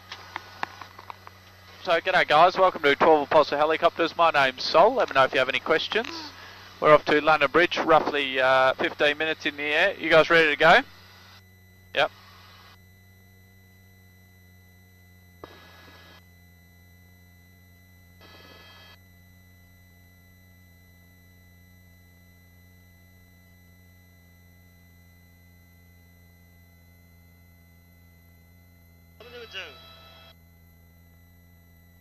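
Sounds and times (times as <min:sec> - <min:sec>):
faint low intercom hum: 0:29.2 - 0:30.3.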